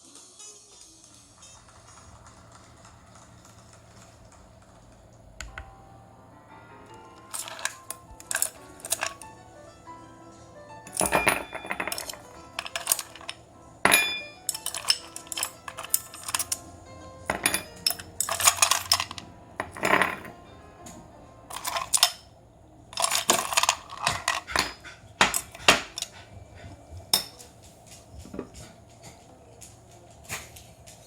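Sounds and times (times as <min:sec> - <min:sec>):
soft background music: 0:00.0 - 0:31.0
metal cooking gear clinking: 0:06.9 - 0:09.5, 0:10.8 - 0:31.0.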